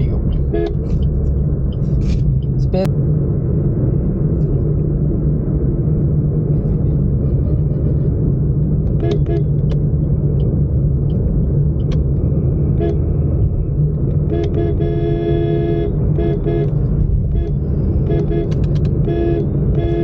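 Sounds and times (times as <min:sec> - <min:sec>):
motorcycle road rumble: 0:00.0 - 0:20.0
vehicle horn toots: 0:00.4 - 0:01.0, 0:08.9 - 0:09.6, 0:12.7 - 0:13.2, 0:14.2 - 0:20.0.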